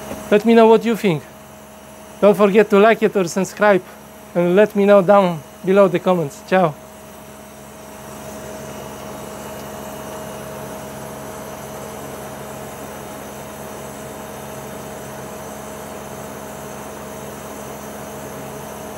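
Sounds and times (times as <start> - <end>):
air conditioning unit hum: 0.0 - 18.9
fan rushing: 0.0 - 18.9.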